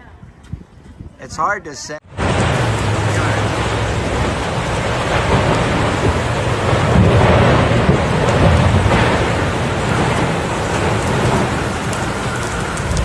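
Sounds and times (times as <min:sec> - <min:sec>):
wind noise: 0:00.0 - 0:13.0
heavy rain: 0:02.0 - 0:13.0
low thunder rumble: 0:02.0 - 0:13.0.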